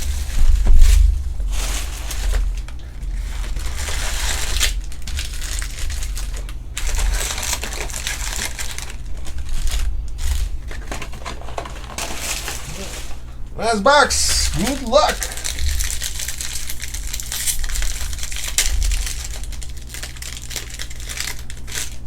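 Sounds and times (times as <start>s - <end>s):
card wrappers crinkling: 11.2s - 22.0s.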